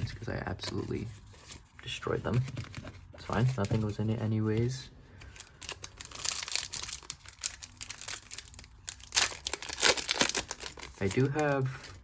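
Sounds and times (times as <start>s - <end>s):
wrapper crinkling and tearing: 5.3s - 12.0s.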